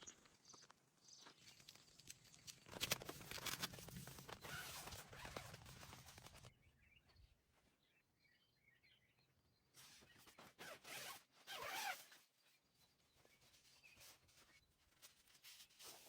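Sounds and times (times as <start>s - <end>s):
faint rustling with clicks: 0.0s - 6.5s.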